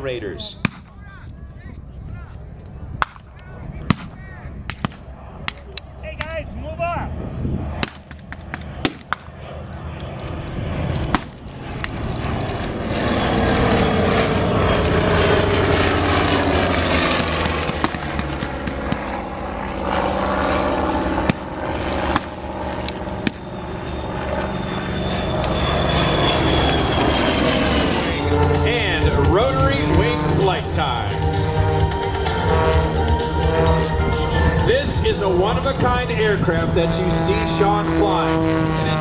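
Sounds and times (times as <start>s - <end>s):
propeller aircraft flying past: 0.0s - 39.0s
sharp clicks: 7.8s - 9.3s, 10.0s - 12.7s, 26.3s - 27.7s.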